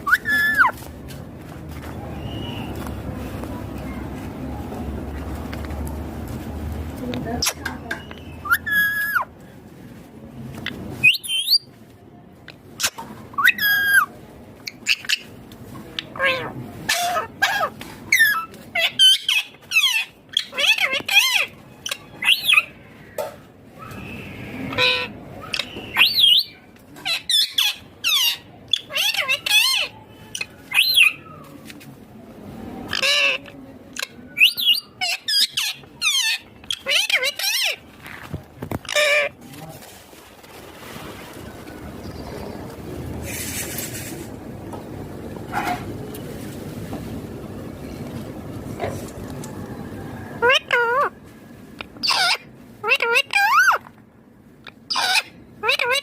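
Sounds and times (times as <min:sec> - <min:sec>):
parakeet calling: 0:32.9 - 0:37.8, 0:51.8 - 0:53.9, 0:54.6 - 0:56.0.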